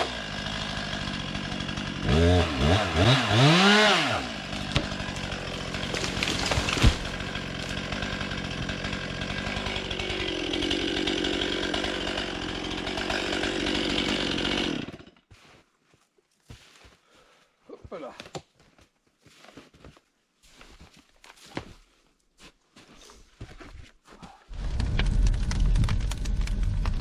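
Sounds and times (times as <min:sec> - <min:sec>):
chainsaw engine revving: 0:00.0 - 0:15.2, 0:24.5 - 0:27.0.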